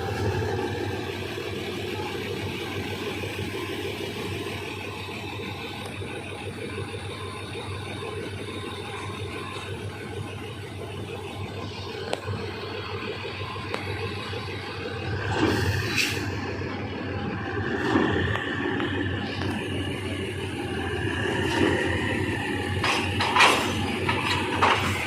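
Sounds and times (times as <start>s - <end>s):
passenger train rumbling: 0.0s - 25.0s.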